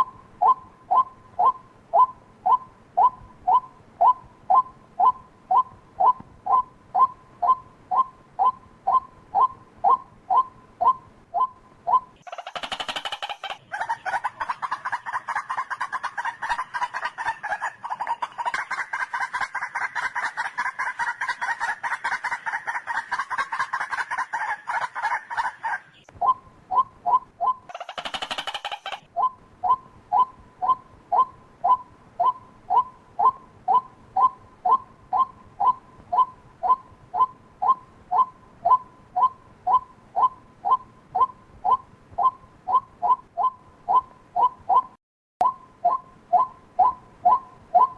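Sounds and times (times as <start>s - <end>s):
waterhen harsh calls: 12.2s - 15.2s, 27.7s - 29.1s.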